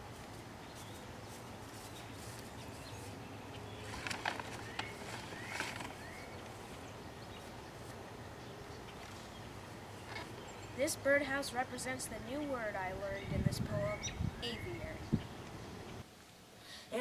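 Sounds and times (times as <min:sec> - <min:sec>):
bird chirps: 0:00.6 - 0:10.8
paper bag crinkling: 0:03.8 - 0:06.3.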